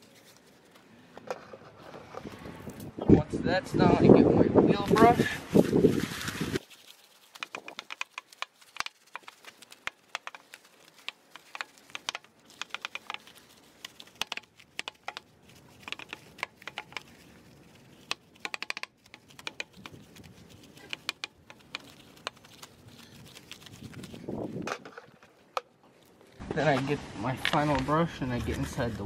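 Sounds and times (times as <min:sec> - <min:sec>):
brush clicking on rim: 0:07.2 - 0:24.2.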